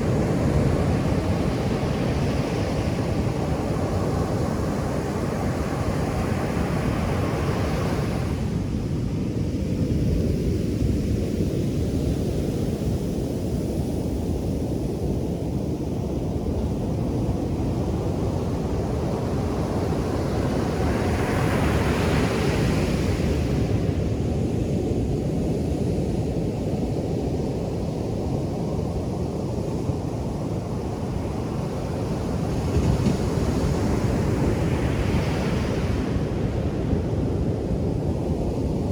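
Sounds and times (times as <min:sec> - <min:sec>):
ocean waves breaking: 0:31.1 - 0:36.8.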